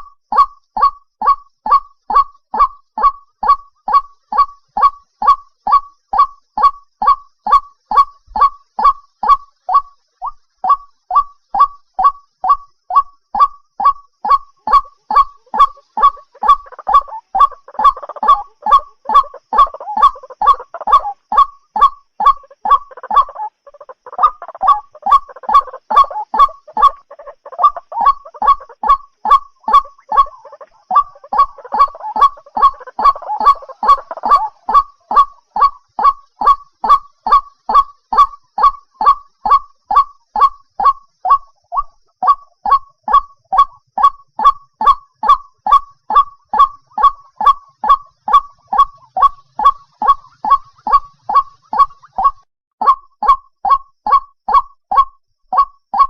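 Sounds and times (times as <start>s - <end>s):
rough jumbled bird calling: 0.0s - 56.0s
waterhen croaking call: 0.0s - 56.0s.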